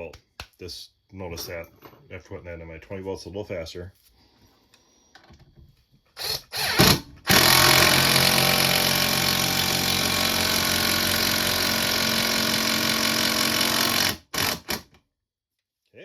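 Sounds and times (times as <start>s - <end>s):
impact driver driving screw into wood: 6.2s - 15.0s.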